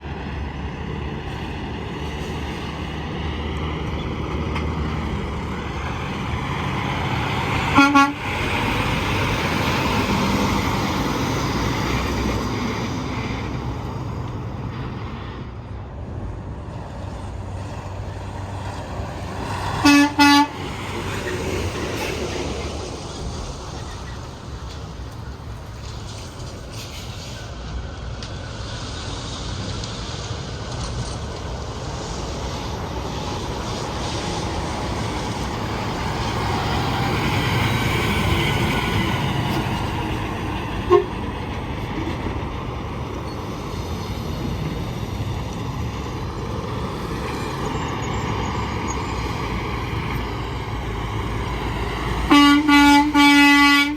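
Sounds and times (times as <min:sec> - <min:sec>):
trucks passing at speed: 0:00.0 - 0:53.9
truck horn blasts: 0:07.7 - 0:08.4, 0:19.8 - 0:20.6, 0:40.8 - 0:41.2, 0:52.3 - 0:53.9.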